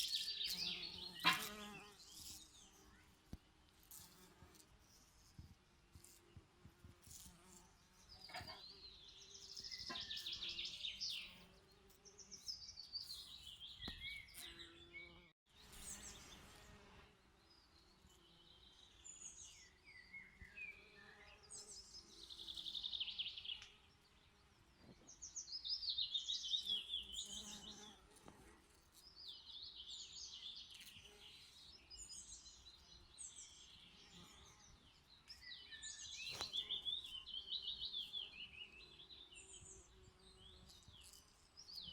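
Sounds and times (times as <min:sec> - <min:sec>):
songbirds twittering: 0:00.0 - 0:04.3, 0:07.7 - 0:16.6, 0:29.0 - 0:41.9.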